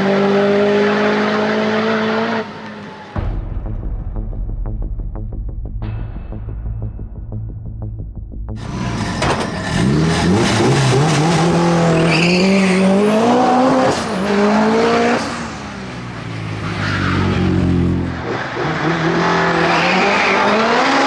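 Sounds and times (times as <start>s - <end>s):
car engine accelerating hard: 0.0s - 3.0s, 8.6s - 21.0s.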